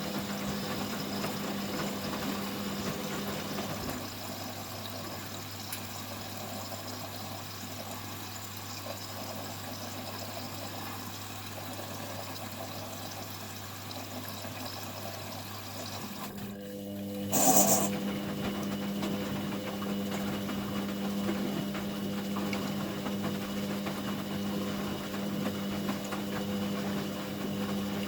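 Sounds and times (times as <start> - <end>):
high motor tone: 17.3 - 17.9.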